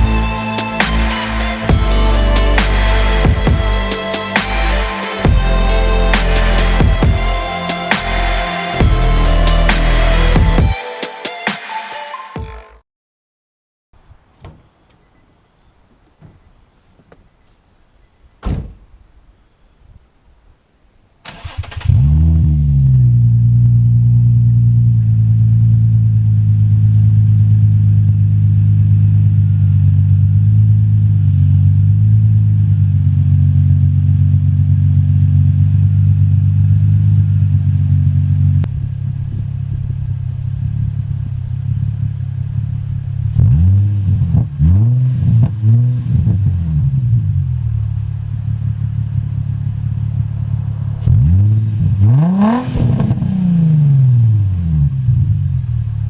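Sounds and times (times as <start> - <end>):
car engine idling: 0.0 - 10.8, 23.5 - 43.4, 47.4 - 52.2
engine throttle blips: 0.0 - 10.8.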